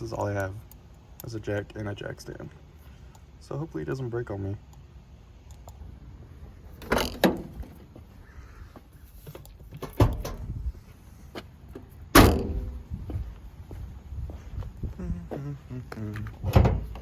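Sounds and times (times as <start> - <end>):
knocks and thuds: 12.2 - 12.8.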